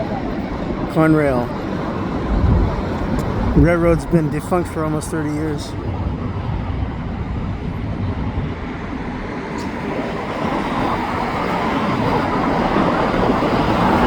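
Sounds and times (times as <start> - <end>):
highway traffic: 0.0 - 14.0
train wheels on rails: 7.6 - 14.0.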